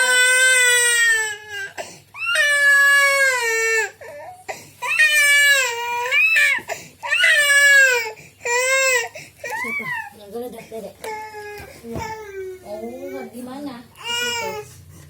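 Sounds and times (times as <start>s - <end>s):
baby crying loudly: 0.0s - 10.0s, 14.0s - 14.6s.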